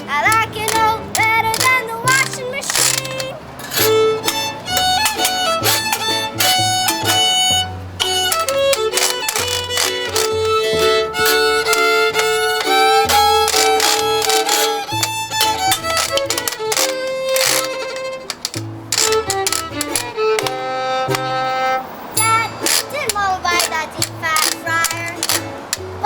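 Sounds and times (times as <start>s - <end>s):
bass ukulele line: 0.0s - 26.0s
fiddle melody: 0.0s - 26.0s
ukulele strumming: 0.0s - 26.0s
washboard clicks: 0.0s - 26.0s.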